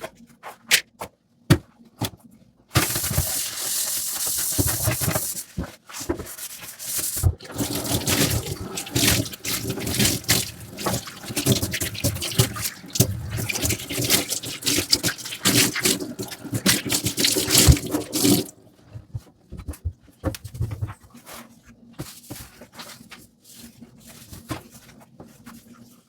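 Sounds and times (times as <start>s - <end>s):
tap water running onto dishes: 6.9s - 18.6s
dishes scrubbing and clattering: 7.3s - 18.6s.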